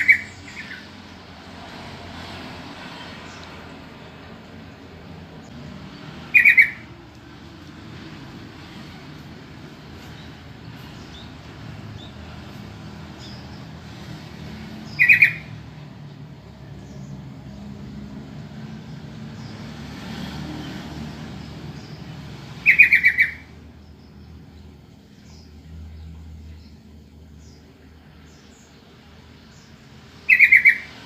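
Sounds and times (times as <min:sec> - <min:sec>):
bulbul harsh calls: 0:00.0 - 0:01.2, 0:05.3 - 0:15.8, 0:21.8 - 0:23.7, 0:30.2 - 0:31.0.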